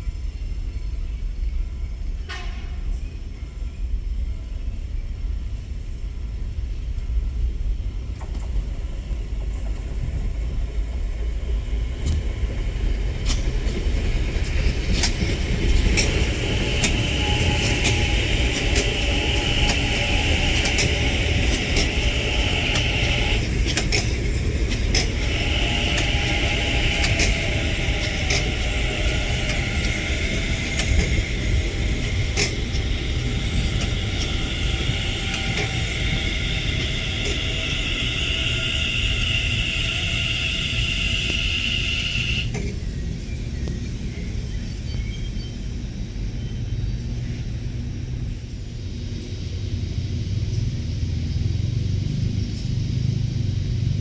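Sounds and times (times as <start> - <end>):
train rumbling on rails: 0.0 - 54.0
wheels clicking over rail joints: 8.1 - 46.3
high whine: 14.4 - 42.6.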